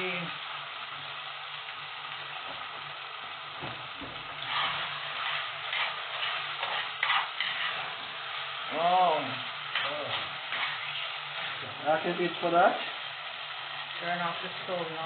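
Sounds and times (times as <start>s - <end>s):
fish and okra sizzling in a pot: 0.0s - 15.0s
spoon scraping against pot: 4.5s - 7.8s.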